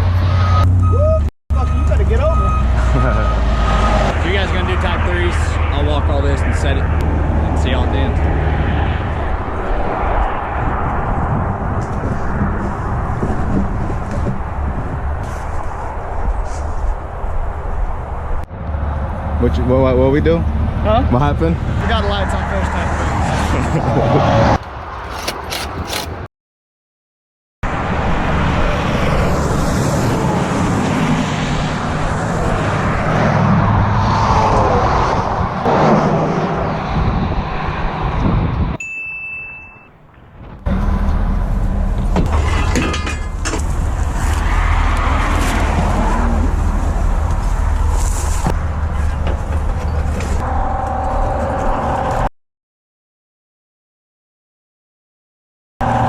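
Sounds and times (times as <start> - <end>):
road noise: 0.0 - 26.3, 27.6 - 52.3
short high beep: 38.8 - 40.0.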